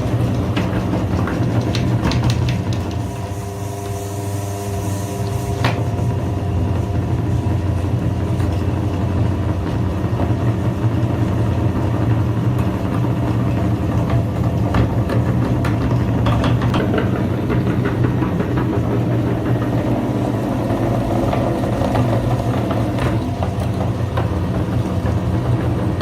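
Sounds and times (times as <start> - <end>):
kitchen grinder motor running: 0.0 - 26.0.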